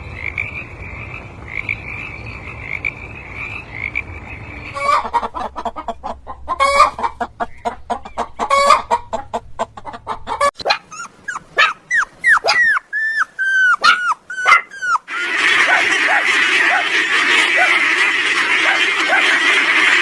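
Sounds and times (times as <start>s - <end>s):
frog trilling croak: 0.2s - 5.0s
chickens clucking: 3.7s - 20.0s.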